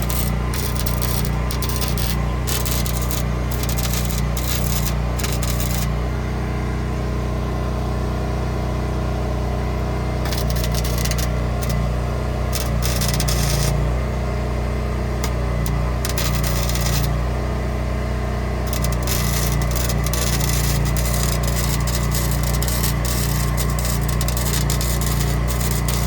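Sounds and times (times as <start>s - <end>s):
welding arc crackling: 0.0s - 6.0s, 10.2s - 14.0s, 15.2s - 17.3s, 18.7s - 26.0s.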